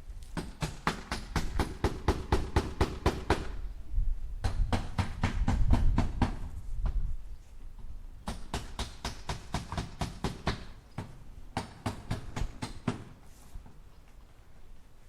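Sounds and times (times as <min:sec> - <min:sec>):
hammer driving nails into wood: 0:00.4 - 0:03.6, 0:08.2 - 0:13.2.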